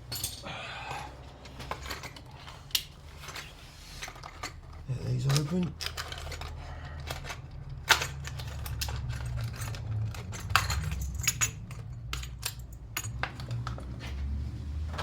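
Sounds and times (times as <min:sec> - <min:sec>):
small hard parts clicking: 0:00.1 - 0:13.9.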